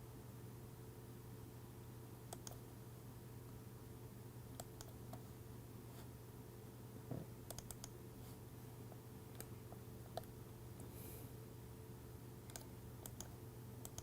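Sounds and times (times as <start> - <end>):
faint clicks: 12.5 - 14.0.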